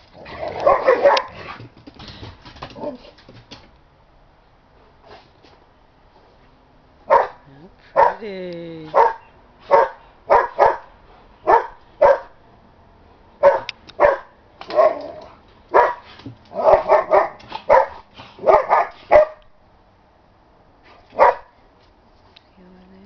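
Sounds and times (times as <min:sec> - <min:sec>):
dog barking: 0:00.5 - 0:01.5, 0:07.1 - 0:08.2, 0:08.9 - 0:12.4, 0:13.4 - 0:19.4, 0:21.1 - 0:21.6.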